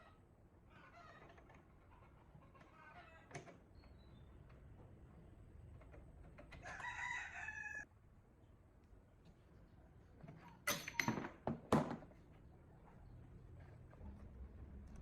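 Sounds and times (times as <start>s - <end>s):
rooster crowing: 6.6s - 7.9s.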